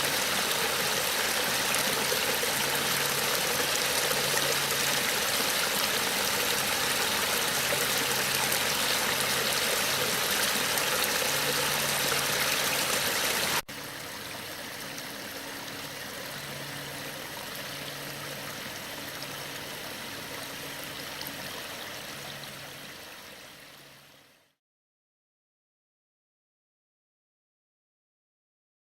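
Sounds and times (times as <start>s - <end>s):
water running down rocks: 0.0s - 13.6s.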